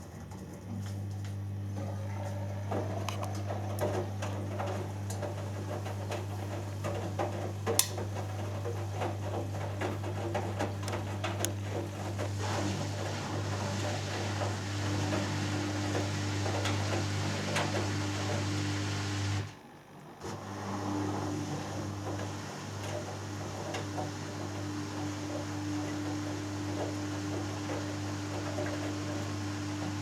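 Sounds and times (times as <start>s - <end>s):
laundry and water in turning drum: 0.0s - 30.0s
washing machine pump hum: 0.0s - 30.0s.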